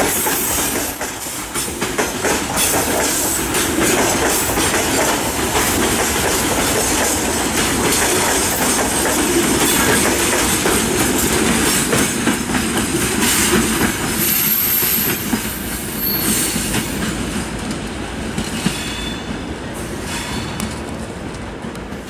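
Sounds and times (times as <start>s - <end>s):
steel wheels clattering over rail joints: 0.0s - 18.9s
freight train rolling past: 0.0s - 22.0s
faint wheel squeal: 16.0s - 16.6s.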